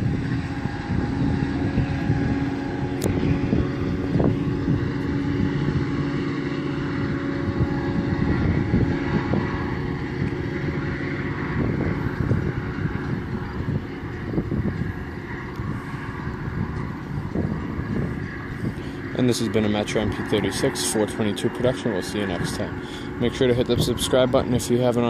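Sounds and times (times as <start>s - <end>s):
diesel train running past: 0.0s - 25.0s
wind buffeting microphone: 0.0s - 25.0s.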